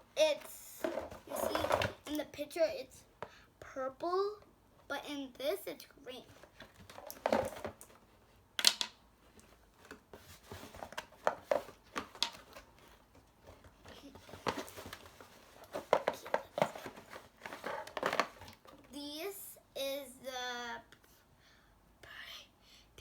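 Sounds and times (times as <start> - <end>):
packaging crinkling: 14.0 - 18.7.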